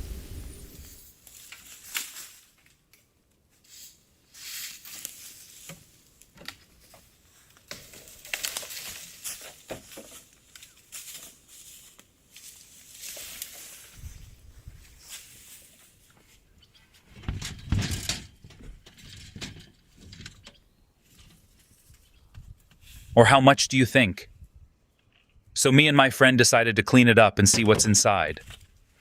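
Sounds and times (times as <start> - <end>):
rustling and crackling: 0.0 - 23.1.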